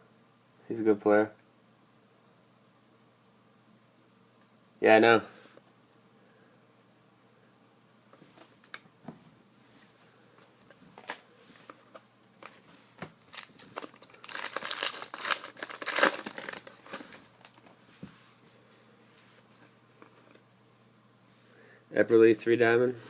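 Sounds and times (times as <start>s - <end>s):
foil wrapper crinkling: 13.2s - 17.7s.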